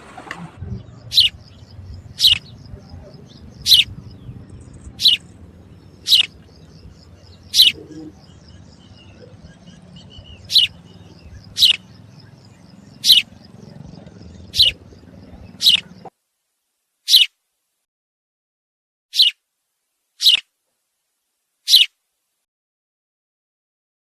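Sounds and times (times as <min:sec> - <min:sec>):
birds twittering: 0:00.0 - 0:16.1, 0:19.2 - 0:19.4, 0:20.2 - 0:20.4, 0:21.7 - 0:21.9
bird sharp chirps: 0:00.1 - 0:16.1, 0:17.1 - 0:17.3, 0:19.2 - 0:19.4, 0:20.2 - 0:20.4, 0:21.7 - 0:21.9.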